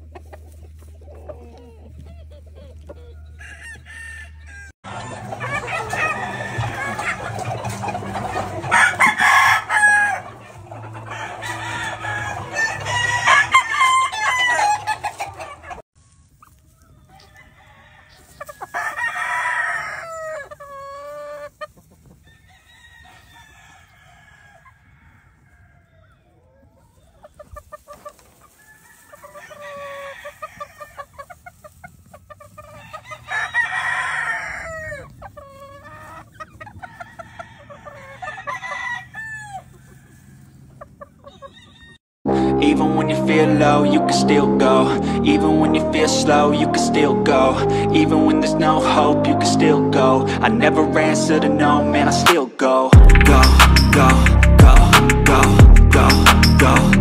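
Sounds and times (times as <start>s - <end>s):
roosters crowing: 0.0s - 15.8s, 16.6s - 42.0s
chickens clucking: 0.0s - 42.0s.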